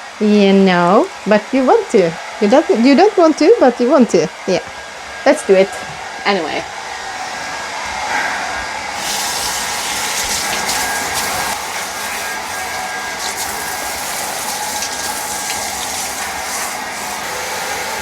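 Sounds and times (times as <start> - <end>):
shower spraying water: 6.0 - 18.0.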